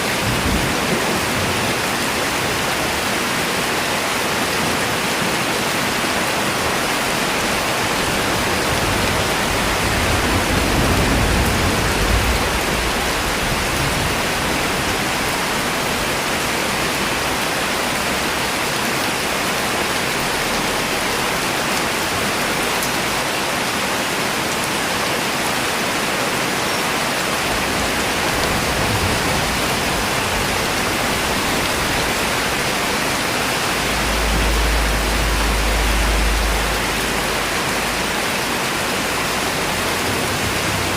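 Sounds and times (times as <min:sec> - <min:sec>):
steady rain falling: 0:00.0 - 0:40.9
low rumble: 0:27.4 - 0:40.9.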